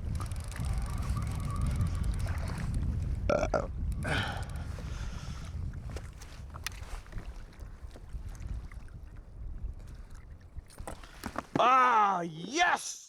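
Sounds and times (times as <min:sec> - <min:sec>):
wind buffeting microphone: 0:00.0 - 0:11.4
man shouting in delight: 0:11.6 - 0:13.0.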